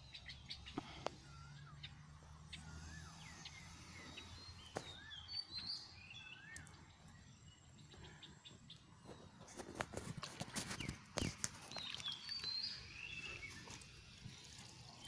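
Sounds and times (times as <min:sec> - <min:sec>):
whistled bird calls: 0:00.0 - 0:06.9, 0:10.7 - 0:15.0
high bird chirps: 0:10.7 - 0:15.0.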